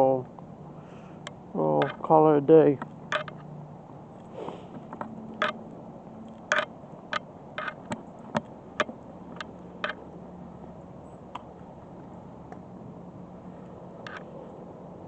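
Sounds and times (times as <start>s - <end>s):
faint steady hum: 0.0s - 15.0s
sharp clicks and light taps: 2.8s - 3.5s.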